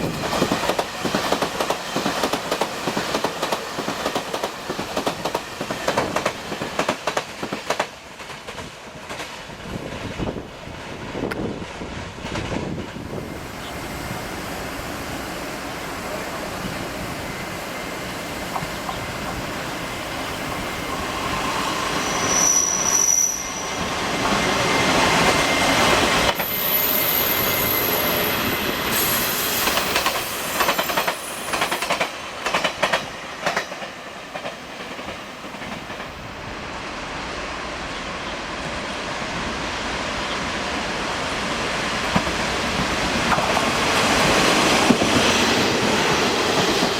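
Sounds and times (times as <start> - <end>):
train wheel-on-rail noise: 0.0 - 46.9
high-pitched wheel squeals: 21.8 - 24.0, 26.4 - 31.9.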